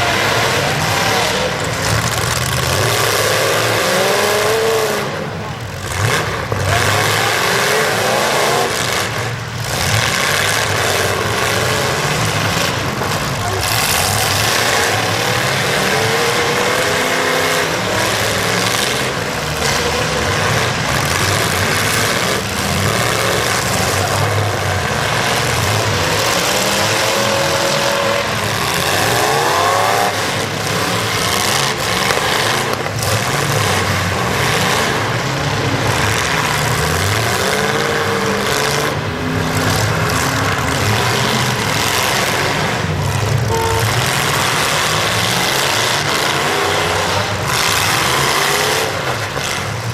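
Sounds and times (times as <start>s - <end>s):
car engines revving hard: 0.0s - 49.9s
din of running engines: 0.0s - 49.9s.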